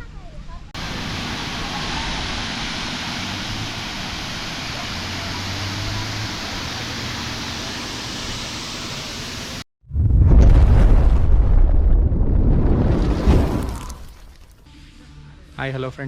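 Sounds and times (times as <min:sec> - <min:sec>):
water pouring over falls: 0:00.8 - 0:07.6, 0:13.0 - 0:14.6.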